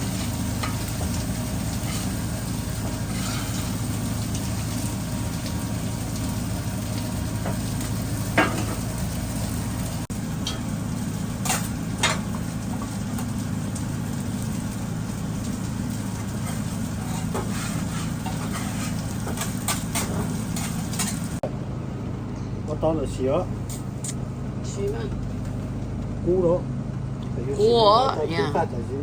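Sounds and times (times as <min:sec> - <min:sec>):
food sizzling in a pan: 0:00.0 - 0:21.4
low hum: 0:00.0 - 0:29.0.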